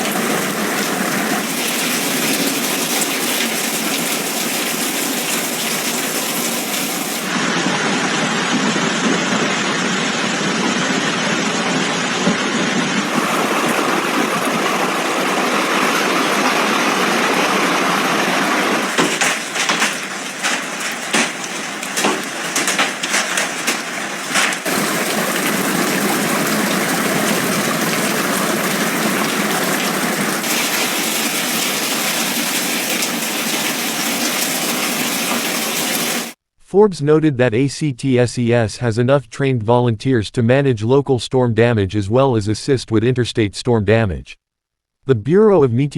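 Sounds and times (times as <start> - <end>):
heavy rain pouring: 0.0 - 36.4
sharp hits and patters: 18.9 - 26.0.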